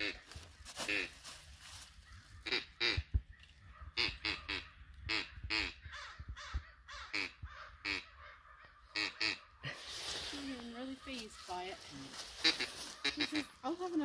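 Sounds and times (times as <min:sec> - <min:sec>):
duck call quacks: 0:02.4 - 0:03.0, 0:04.0 - 0:05.8, 0:06.9 - 0:09.5, 0:12.4 - 0:13.6.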